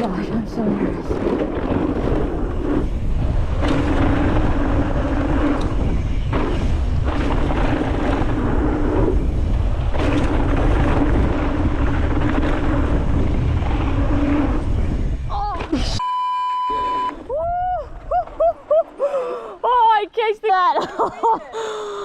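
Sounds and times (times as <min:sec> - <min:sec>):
tyres rumbling on dirt: 0:00.0 - 0:16.0
wind rushing over microphone: 0:00.0 - 0:16.0.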